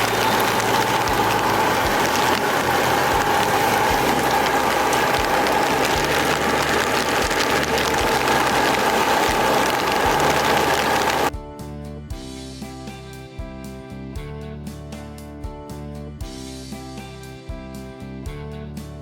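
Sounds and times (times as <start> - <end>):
low mechanical hum: 0.0 - 11.3
wind-driven rain rushing: 0.0 - 11.3.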